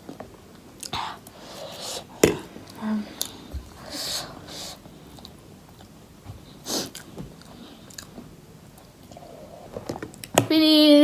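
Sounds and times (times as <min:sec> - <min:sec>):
quiet chewing: 0:04.9 - 0:10.4.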